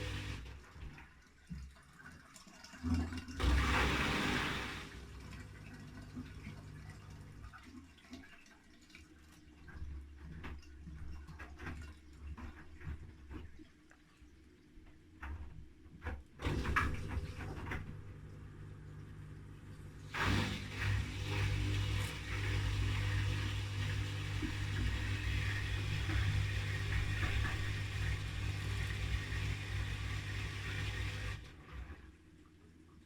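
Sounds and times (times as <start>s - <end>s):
pump hum: 0.0s - 0.9s, 3.4s - 7.7s, 16.4s - 32.1s
water rushing: 3.4s - 7.4s.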